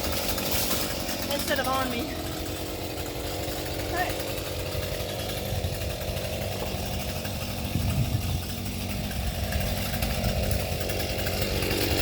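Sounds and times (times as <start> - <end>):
chainsaw engine idling: 0.0 - 12.0.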